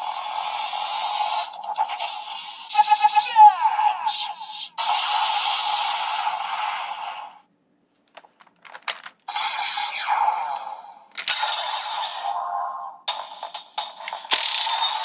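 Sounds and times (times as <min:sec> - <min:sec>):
plastic clicks: 0:08.0 - 0:09.3, 0:10.4 - 0:11.6, 0:14.1 - 0:15.0
electronic toy sound effects: 0:14.1 - 0:15.0.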